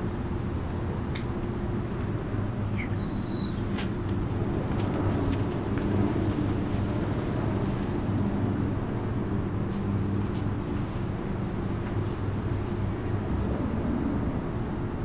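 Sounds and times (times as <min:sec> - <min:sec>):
steady low rumble: 0:00.0 - 0:15.0
small birds chirping: 0:01.7 - 0:05.4.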